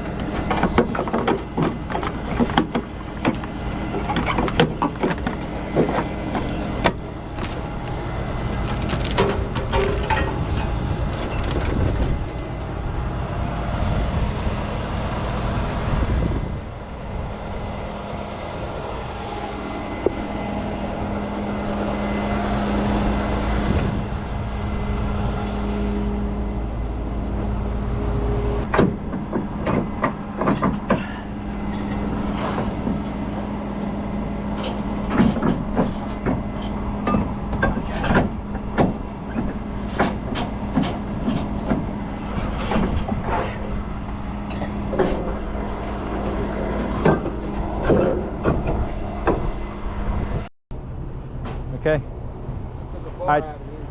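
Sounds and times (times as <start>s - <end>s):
metallic knocks and clanks: 0.0s - 7.0s, 8.8s - 12.7s, 28.6s - 33.2s, 34.5s - 49.6s
heavy truck engine running: 0.0s - 53.9s.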